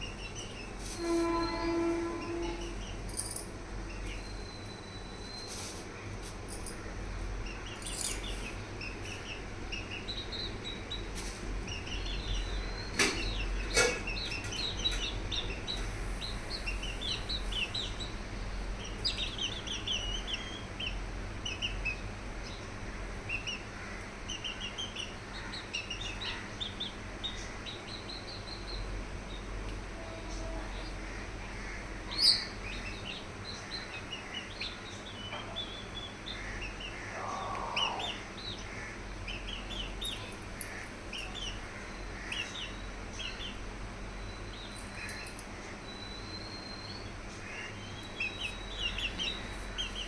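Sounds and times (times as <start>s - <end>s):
steady low hum: 0.0s - 50.0s
high bird chirps and peeps: 18.8s - 22.6s, 47.8s - 50.0s.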